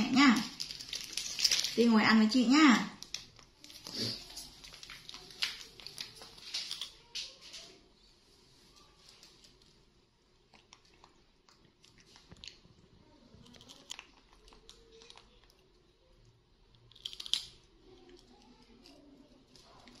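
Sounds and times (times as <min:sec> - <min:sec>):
crunchy snack chewing: 0:10.5 - 0:12.7, 0:13.4 - 0:15.5.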